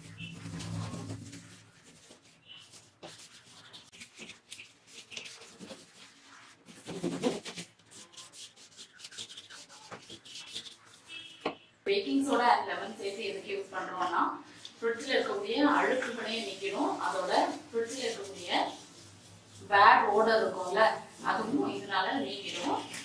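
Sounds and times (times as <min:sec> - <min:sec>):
scrubber scratching fridge walls: 0:00.0 - 0:11.4.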